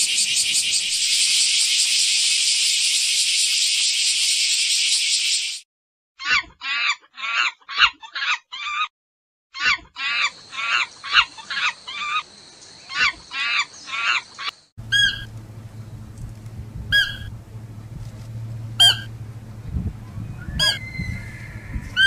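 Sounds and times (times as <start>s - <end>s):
steady low hum: 14.8s - 22.0s
quick short animal calls: 16.9s - 17.3s, 18.8s - 19.1s
short sharp high calls: 20.4s - 22.0s.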